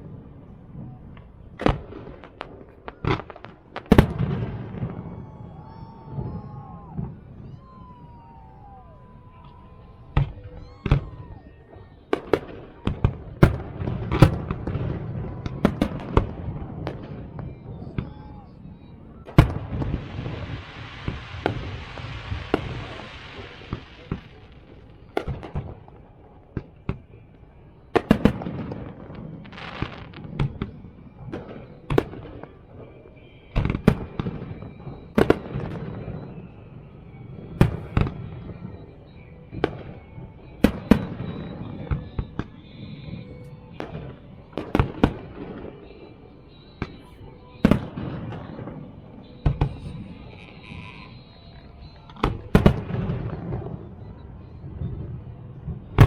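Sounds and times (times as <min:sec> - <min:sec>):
firework shells bursting: 0:19.3 - 0:25.8
firework crackling hiss: 0:19.4 - 0:25.9, 0:29.2 - 0:30.8, 0:42.2 - 0:53.9.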